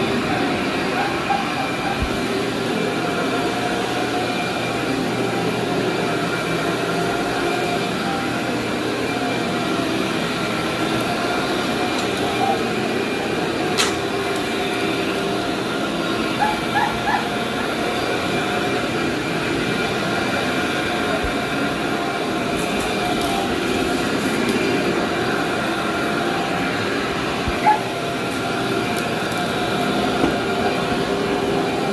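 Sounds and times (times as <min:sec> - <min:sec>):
vacuum cleaner whining: 0:00.0 - 0:31.9
dog yipping: 0:00.9 - 0:02.2, 0:12.2 - 0:12.7, 0:16.4 - 0:17.4, 0:27.6 - 0:27.9.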